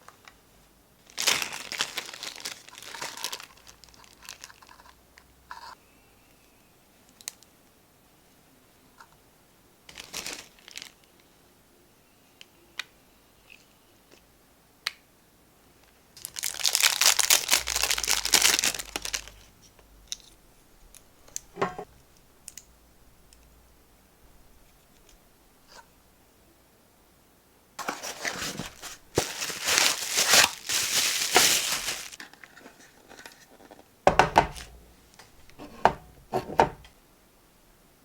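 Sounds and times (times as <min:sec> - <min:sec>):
packaging crinkling: 0:01.0 - 0:05.0, 0:09.9 - 0:11.0, 0:16.2 - 0:19.5, 0:27.8 - 0:33.3.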